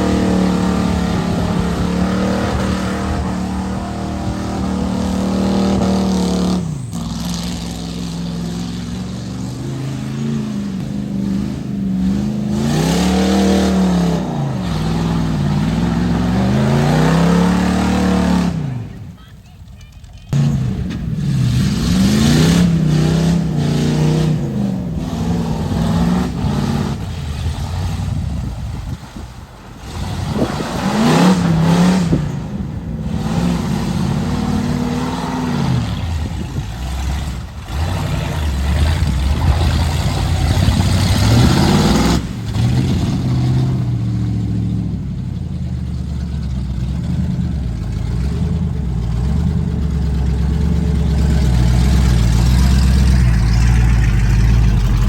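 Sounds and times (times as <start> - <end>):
truck engine revving: 0.0 - 55.0.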